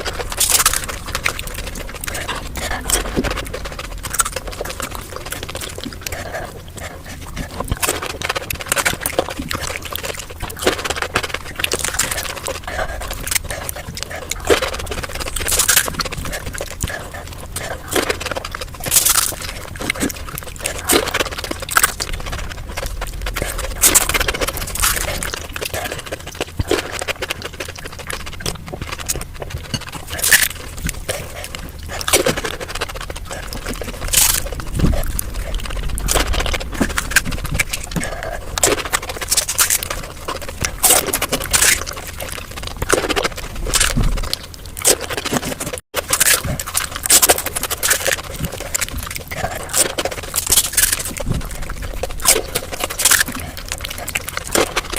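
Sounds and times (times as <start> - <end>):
crisp shells crunching: 0.0 - 54.9
slurping water: 0.0 - 54.9.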